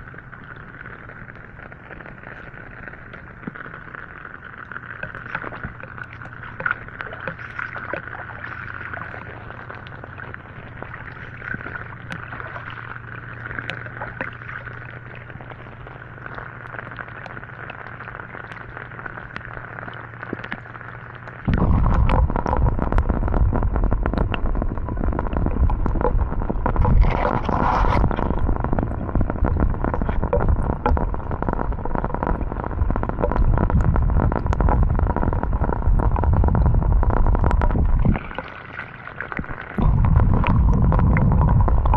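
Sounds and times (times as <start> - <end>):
low hum: 0.0 - 41.9
rain: 0.0 - 41.9
raindrops tapping on camera: 18.4 - 41.9
steady high drone: 39.8 - 41.9.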